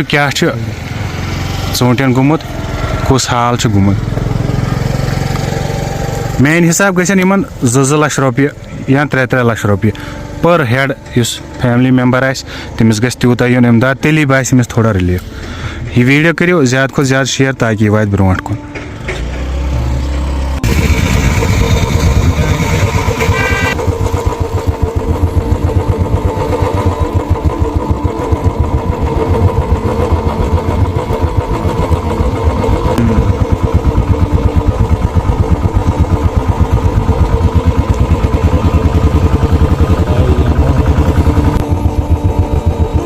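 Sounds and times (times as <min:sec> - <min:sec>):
small engine running: 0:00.5 - 0:12.8, 0:18.9 - 0:43.0.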